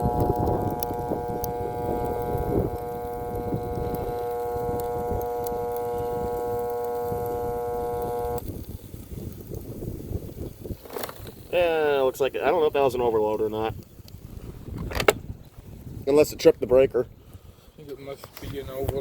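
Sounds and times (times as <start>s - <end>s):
vacuum motor buzzing hum: 0.0s - 8.4s.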